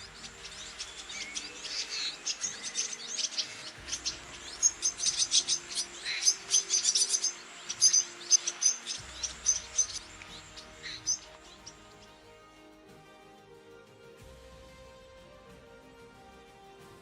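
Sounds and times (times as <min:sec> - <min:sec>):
bird twittering high chirps: 0:00.0 - 0:12.2.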